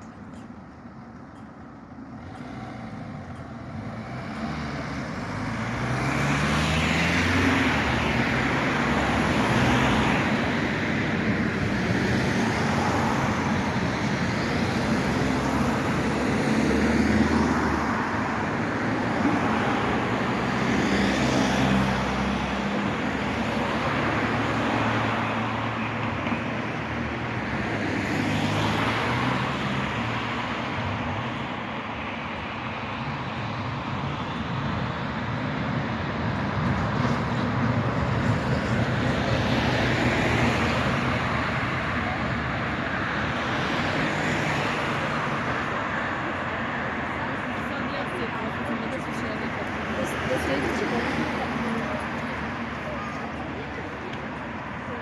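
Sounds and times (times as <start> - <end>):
tram rumbling: 0.0 - 55.0.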